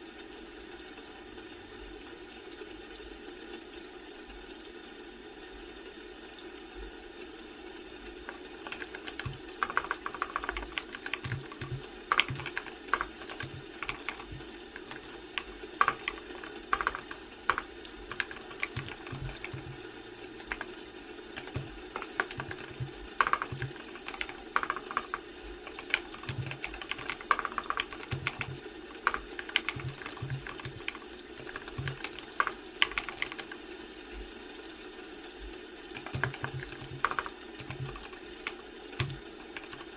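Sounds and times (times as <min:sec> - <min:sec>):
keyboard key clicks: 0:08.3 - 0:19.8, 0:20.4 - 0:20.8, 0:21.4 - 0:33.6, 0:36.0 - 0:39.9.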